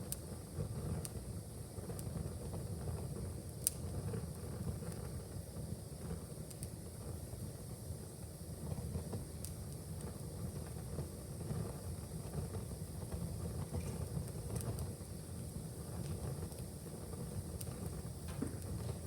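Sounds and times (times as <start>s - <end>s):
fire crackles and pops: 0.0s - 19.0s
low rumble of flames: 0.0s - 19.0s.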